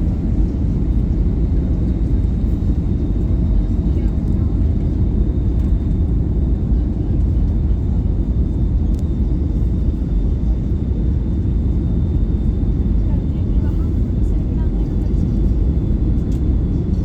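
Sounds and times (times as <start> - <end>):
aircraft cabin engine rumble: 0.0 - 17.0.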